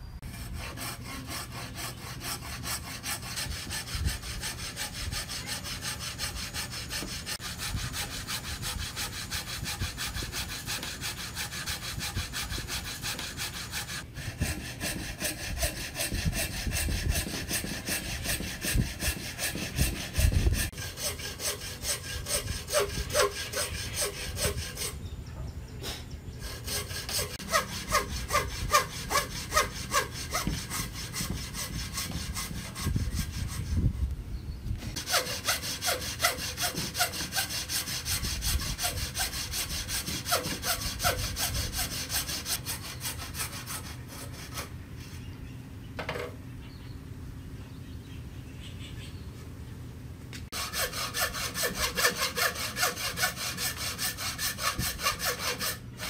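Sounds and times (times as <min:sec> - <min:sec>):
hand saw cutting wood: 0:00.2 - 0:25.0, 0:26.4 - 0:33.9, 0:34.9 - 0:44.7, 0:50.5 - 0:56.0.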